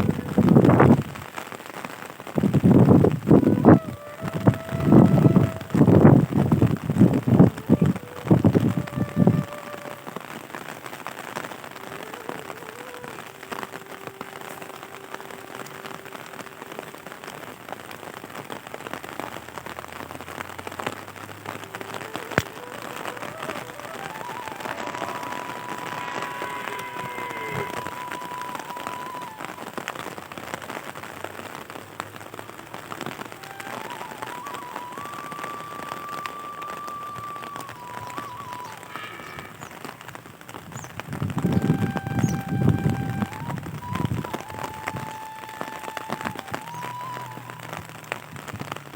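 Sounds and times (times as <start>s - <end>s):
rain pattering on surfaces: 0.0s - 48.9s
faint held tones: 22.4s - 29.8s.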